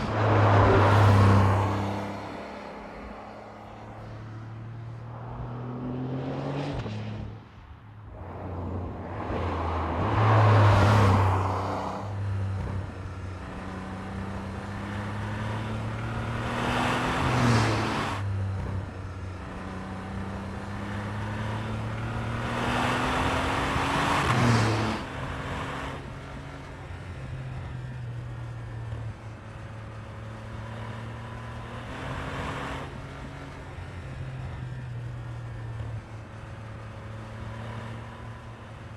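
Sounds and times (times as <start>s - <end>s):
car engine accelerating through gears: 0.0s - 7.4s, 8.1s - 27.8s.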